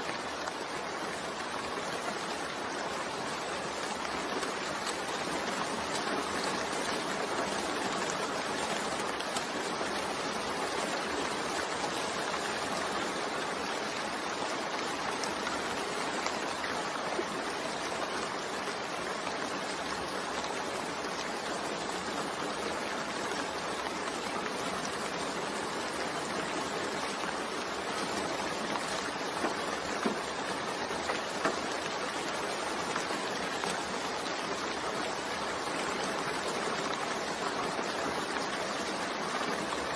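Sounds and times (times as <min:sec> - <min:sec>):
steady rain: 0:00.0 - 0:39.9
raindrops ticking: 0:23.4 - 0:39.9.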